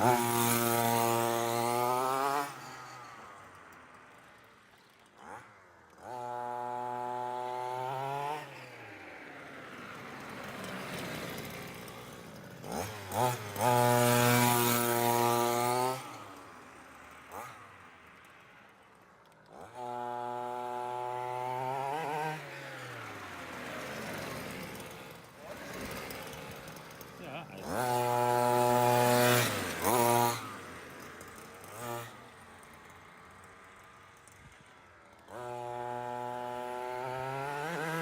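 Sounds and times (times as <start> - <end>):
two-stroke engine revving: 0.0 - 38.0.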